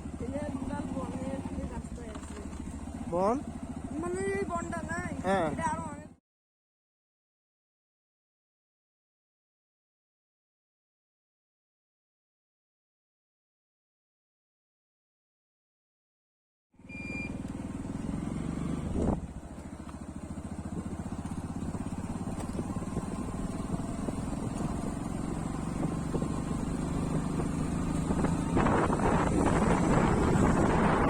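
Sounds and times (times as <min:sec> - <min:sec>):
small vehicle engine running: 0:00.0 - 0:06.2, 0:16.8 - 0:31.0
wind noise on microphone: 0:18.8 - 0:19.3, 0:25.8 - 0:26.5, 0:28.0 - 0:31.0.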